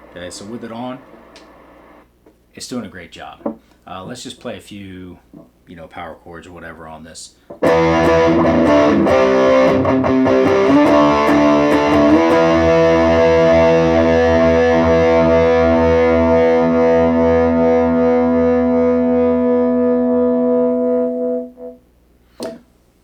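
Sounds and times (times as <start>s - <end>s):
distorted electric guitar chords: 7.6s - 21.9s.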